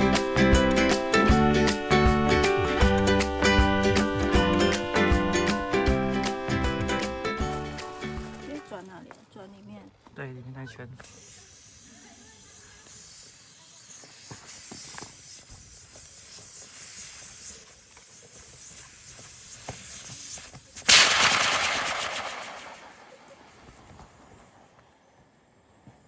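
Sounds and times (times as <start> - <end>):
gas stove burner hissing: 10.8 - 23.9
loud crackling hiss: 10.9 - 24.2.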